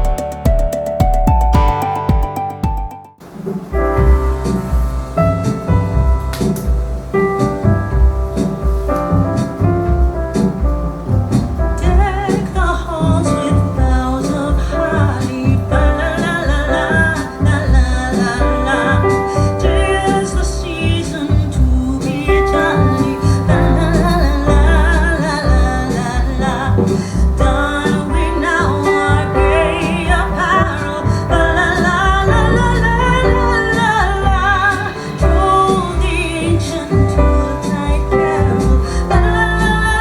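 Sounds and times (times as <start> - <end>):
deep heavy bass line: 3.8 - 40.0
song with singing voice: 8.4 - 40.0.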